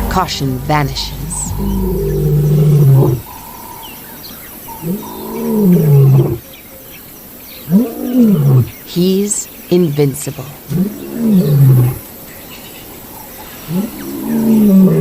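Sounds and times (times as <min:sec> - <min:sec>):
lion roaring: 0:00.0 - 0:06.4, 0:07.7 - 0:08.8, 0:10.7 - 0:12.0, 0:13.4 - 0:15.0
faint bird chirps: 0:00.9 - 0:10.1.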